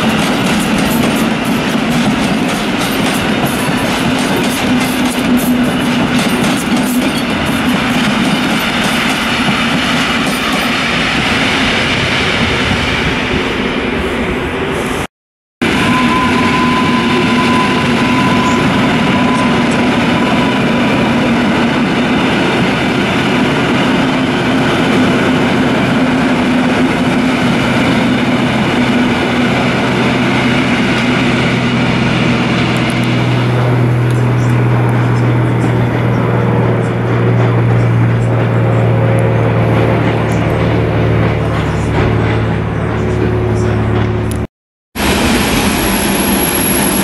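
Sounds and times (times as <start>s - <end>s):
electric train running: 0.0s - 12.9s, 15.6s - 47.0s
propeller plane engine drone: 15.6s - 47.0s.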